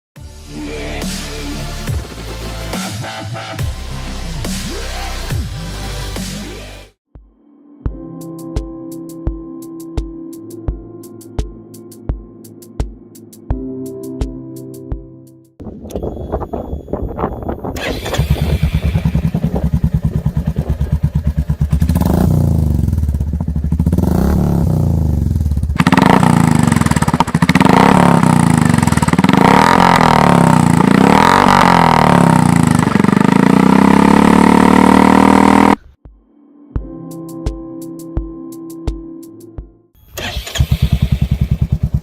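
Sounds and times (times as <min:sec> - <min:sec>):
motorcycle engine idling and revving: 0:15.6 - 0:36.0, 0:40.2 - 0:42.0.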